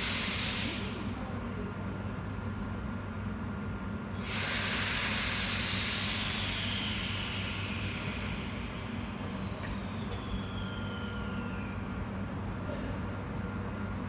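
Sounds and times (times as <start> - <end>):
air brakes hissing: 0.0 - 1.1, 4.2 - 12.0
faint falling whistle: 8.4 - 12.0.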